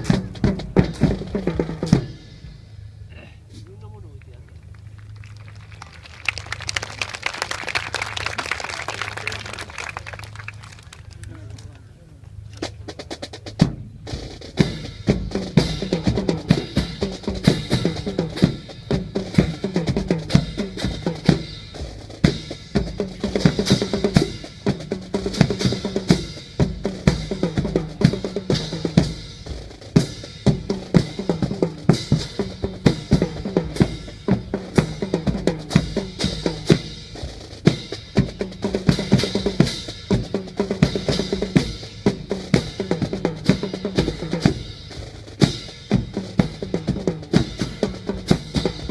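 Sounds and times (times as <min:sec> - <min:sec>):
fast drum strikes: 0:00.0 - 0:02.7, 0:12.6 - 0:48.9.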